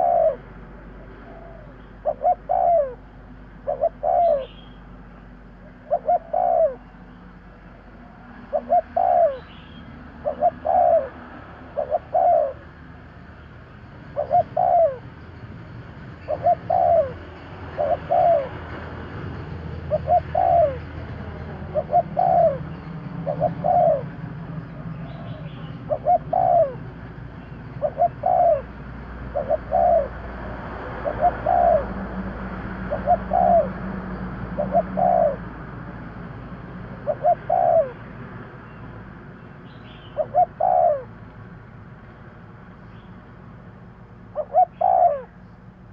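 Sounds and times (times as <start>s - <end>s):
dove cooing: 0.0s - 0.4s, 1.0s - 3.0s, 3.6s - 4.7s, 5.6s - 6.9s, 8.1s - 12.8s, 14.0s - 15.4s, 16.2s - 18.8s, 19.8s - 35.6s, 36.9s - 38.1s, 40.0s - 41.1s, 44.3s - 45.4s.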